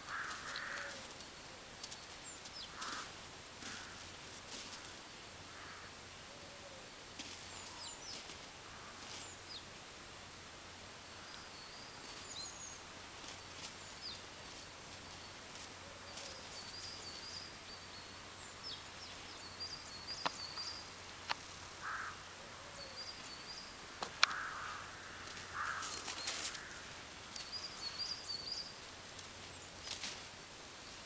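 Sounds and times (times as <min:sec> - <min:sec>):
soft rustles: 0:00.0 - 0:05.2, 0:07.1 - 0:09.4, 0:12.0 - 0:17.5, 0:23.0 - 0:31.0
small birds chirping: 0:00.0 - 0:09.9, 0:10.9 - 0:31.0.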